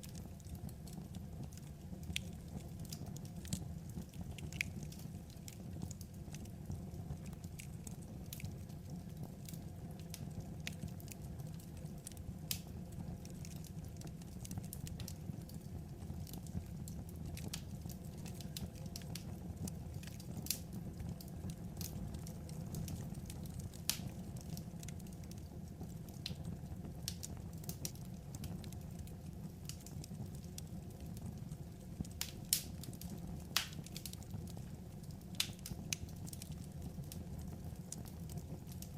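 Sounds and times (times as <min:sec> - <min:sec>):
low rumble of burning logs: 0:00.0 - 0:38.9
wood fire crackling and popping: 0:00.0 - 0:38.9.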